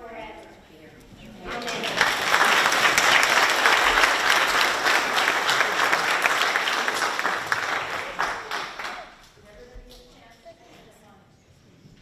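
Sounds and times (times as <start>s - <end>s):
crowd clapping: 1.4s - 9.4s.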